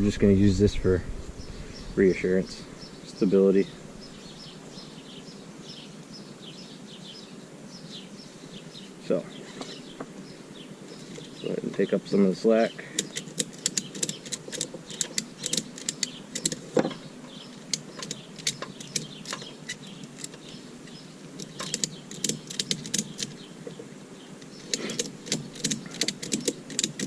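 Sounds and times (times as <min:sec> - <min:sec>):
ratchet strap clicking: 0:13.0 - 0:16.9, 0:17.6 - 0:23.4, 0:24.4 - 0:27.0.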